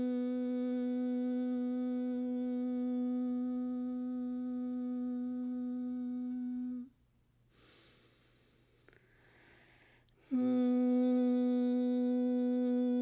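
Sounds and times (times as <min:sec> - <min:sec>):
woman humming a steady note: 0:00.0 - 0:07.0, 0:10.1 - 0:13.0
woman breathing: 0:07.5 - 0:10.3.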